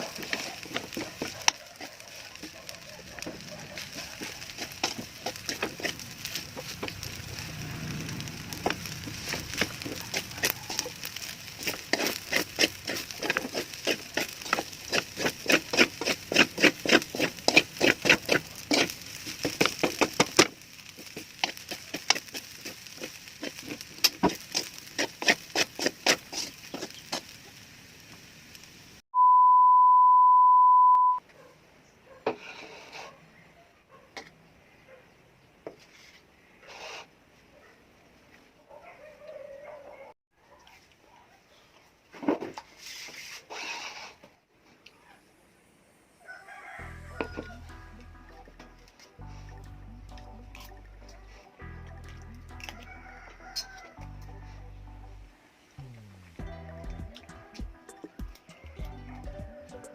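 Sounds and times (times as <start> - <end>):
high beep: 29.2 - 31.2.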